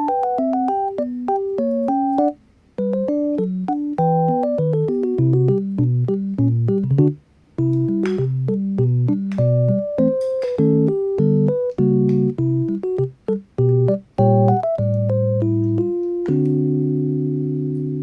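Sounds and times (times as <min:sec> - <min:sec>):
electric piano melody: 0:00.0 - 0:18.0
bass notes: 0:02.8 - 0:18.0.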